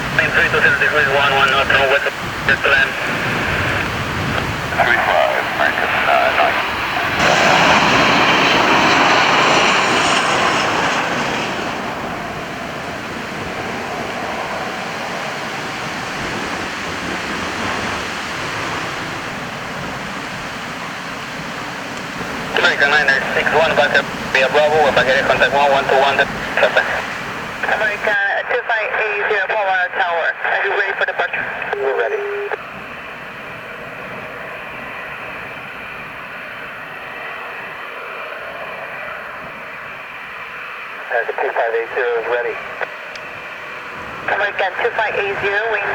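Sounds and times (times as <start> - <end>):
radio static hiss: 0.0 - 10.2, 22.2 - 32.8, 40.8 - 45.9
jet engines rushing: 0.0 - 45.9.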